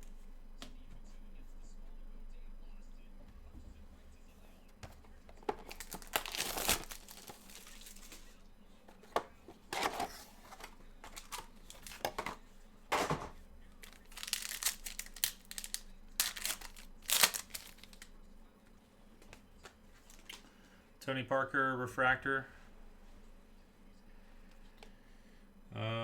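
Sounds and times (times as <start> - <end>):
card pack wrapper tearing and crinkling: 5.4 - 8.3, 9.7 - 12.2, 13.8 - 18.1.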